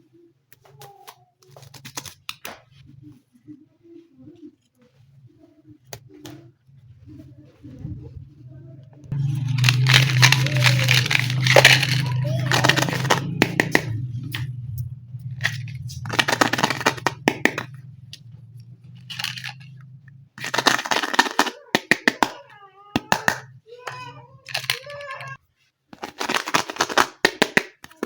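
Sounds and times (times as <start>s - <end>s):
plastic parts clicking: 0.5s - 2.6s, 9.1s - 14.5s, 15.4s - 17.8s, 19.0s - 19.8s, 20.4s - 28.0s
low hum: 6.7s - 20.9s
plastic packaging crinkling: 9.1s - 13.7s, 19.1s - 19.7s.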